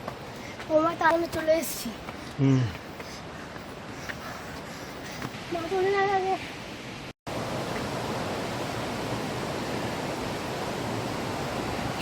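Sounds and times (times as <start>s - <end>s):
large waterfall rushing: 5.4s - 12.0s.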